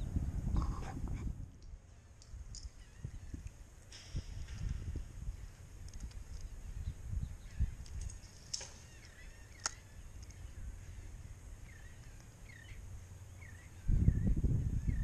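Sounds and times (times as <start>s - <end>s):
wind buffeting microphone: 0.0s - 15.0s
wind rumble: 0.0s - 15.0s
bird chirping: 1.8s - 3.6s, 5.2s - 15.0s
sharp clicks: 7.5s - 10.4s.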